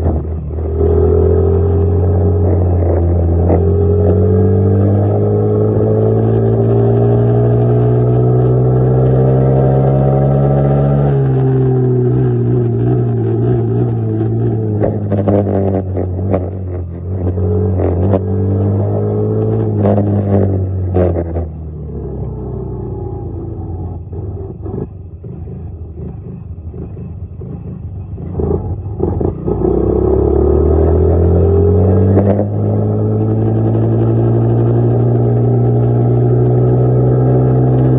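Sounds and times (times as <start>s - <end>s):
dirt bike engine running: 24.0s - 29.4s.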